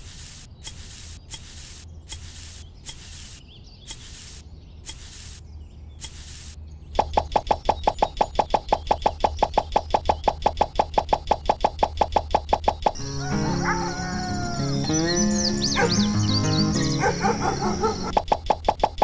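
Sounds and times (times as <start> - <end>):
short hissing bursts: 0.0 - 5.4, 6.0 - 6.6.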